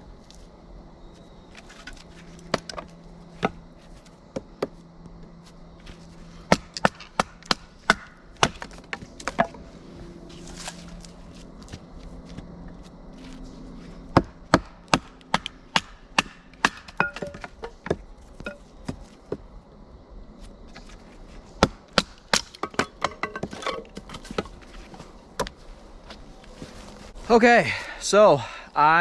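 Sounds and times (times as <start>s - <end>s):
firewood being chopped: 1.5s - 5.2s, 5.8s - 9.7s, 14.1s - 19.5s, 21.6s - 25.6s.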